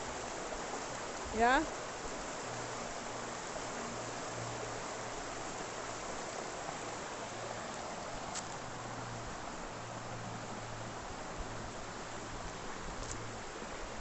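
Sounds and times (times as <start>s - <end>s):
stream flowing: 0.0s - 14.0s.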